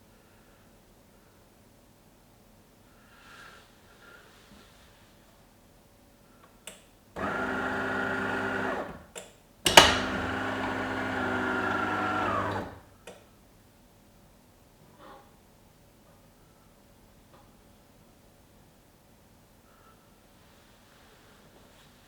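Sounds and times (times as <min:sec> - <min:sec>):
coffee machine pump buzzing: 0:07.2 - 0:09.1, 0:09.7 - 0:12.9.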